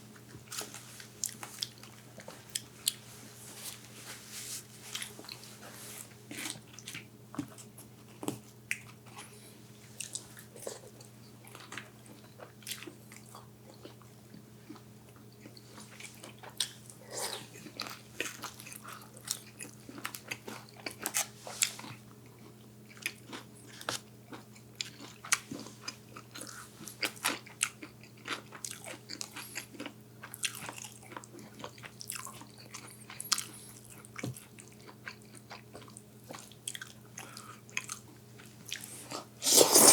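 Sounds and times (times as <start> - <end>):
person eating crunchy food: 6.3 - 9.4, 10.0 - 14.0, 15.4 - 39.9.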